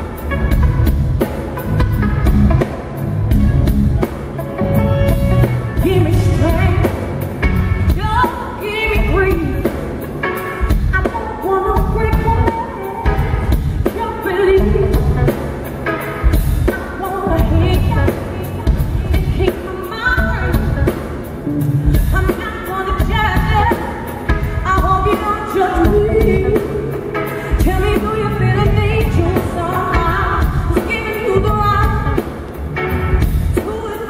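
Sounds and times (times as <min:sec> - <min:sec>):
soul band playing: 0:00.0 - 0:34.0
woman singing: 0:05.7 - 0:07.2, 0:07.8 - 0:15.4, 0:16.6 - 0:21.1, 0:21.8 - 0:32.3, 0:33.5 - 0:34.0.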